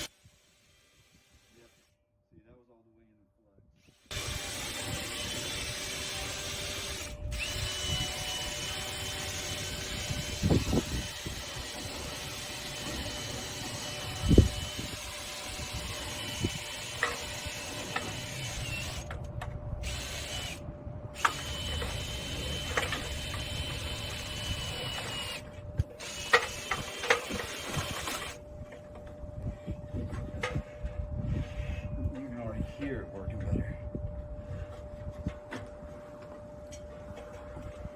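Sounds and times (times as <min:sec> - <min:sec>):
power drill whining: 0:03.8 - 0:19.2, 0:19.8 - 0:20.6, 0:21.2 - 0:28.4.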